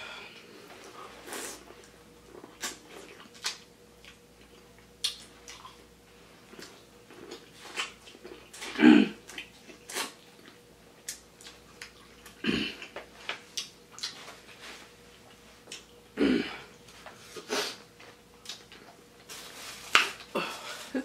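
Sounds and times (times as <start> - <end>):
chewing corn on the cob: 0.8 - 5.9, 6.5 - 16.1.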